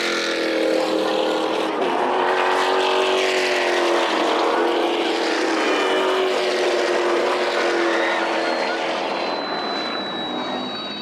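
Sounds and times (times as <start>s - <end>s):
race car engines droning past: 0.0s - 11.0s.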